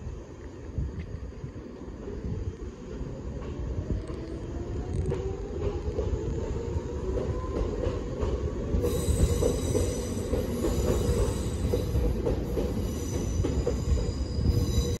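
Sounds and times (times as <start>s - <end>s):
electric train rumbling on rails: 0.0s - 15.0s
high-pitched wheel squeal: 8.8s - 12.0s.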